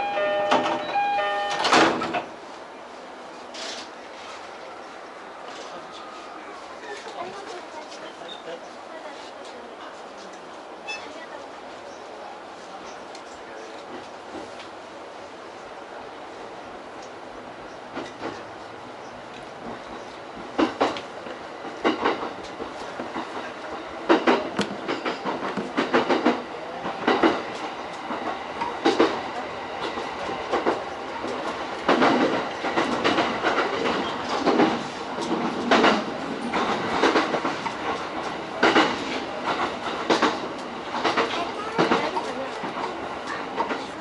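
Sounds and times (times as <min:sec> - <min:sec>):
train running noise: 0:00.0 - 0:44.0
train wheels clacking over joints: 0:19.6 - 0:43.9.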